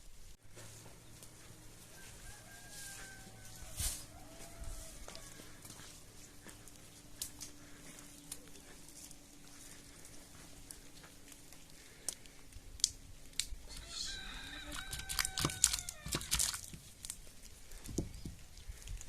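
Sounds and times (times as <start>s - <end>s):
clicks and crunches: 6.8s - 13.8s, 14.7s - 19.0s
animal call: 13.7s - 16.6s.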